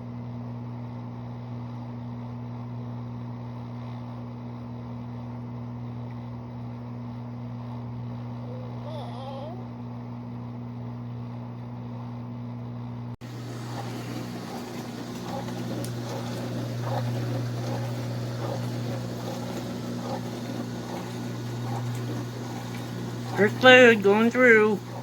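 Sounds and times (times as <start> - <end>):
dishwasher pump motor hum: 0.0 - 25.0
water spraying and splashing: 13.2 - 25.0.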